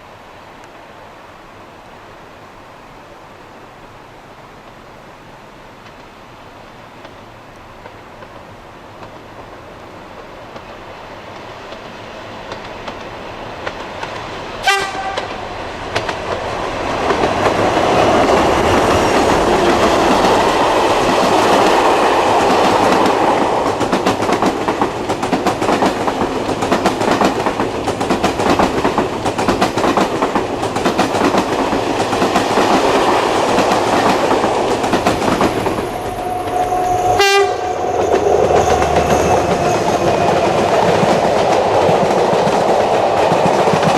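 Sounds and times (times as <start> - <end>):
diesel passenger train passing: 3.2 - 43.9
wheels clacking over rail joints: 7.8 - 36.6, 37.9 - 43.9.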